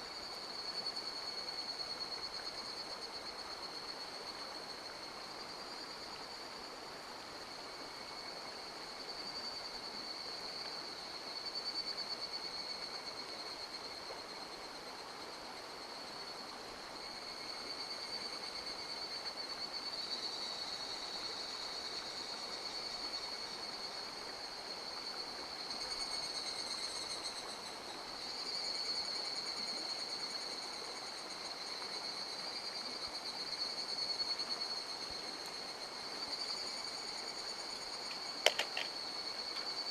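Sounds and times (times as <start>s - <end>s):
insect high-pitched trill: 8.0s - 39.9s
stream flowing: 29.4s - 39.9s.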